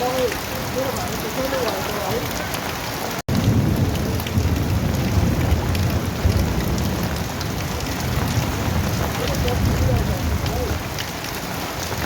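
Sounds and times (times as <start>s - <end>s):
heavy rain falling: 0.0s - 12.0s
low rumble of thunder: 3.3s - 12.0s.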